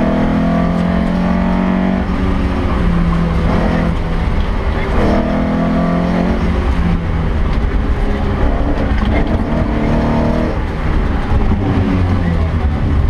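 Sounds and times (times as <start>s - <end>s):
rally car engine running hard: 0.0s - 13.0s.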